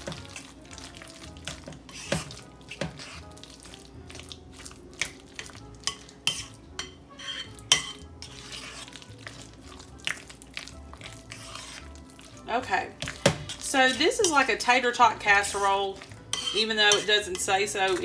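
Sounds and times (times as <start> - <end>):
spoon clinking and scraping bowl: 0.0 - 18.0.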